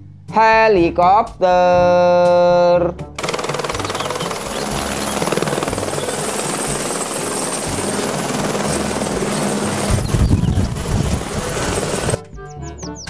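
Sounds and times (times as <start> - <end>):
helicopter rotor chop: 3.2 - 12.2
turbine whine: 3.2 - 12.2.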